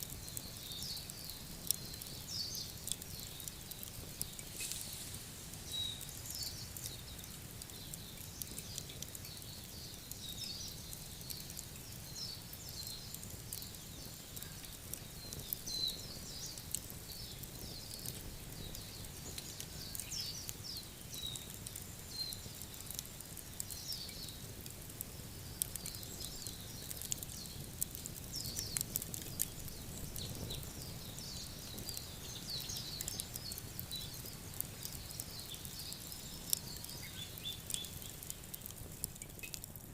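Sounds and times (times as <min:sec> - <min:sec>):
wood fire crackling and popping: 0:00.0 - 0:39.9
birds chirping: 0:28.2 - 0:38.7.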